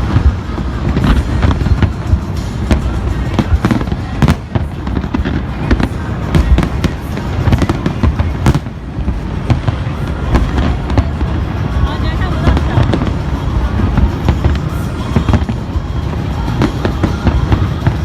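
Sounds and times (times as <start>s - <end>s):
continuous rumble: 0.0s - 18.0s
fireworks bangs and crackles: 0.0s - 18.0s.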